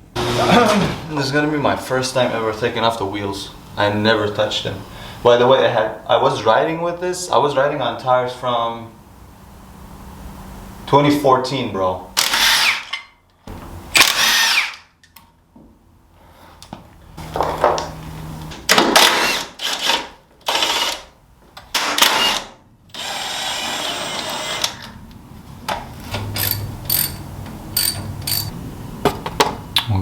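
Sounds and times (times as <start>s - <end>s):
impact wrench bursts: 12.2s - 13.0s, 13.9s - 14.9s, 18.7s - 21.1s, 21.7s - 24.9s, 26.4s - 28.5s.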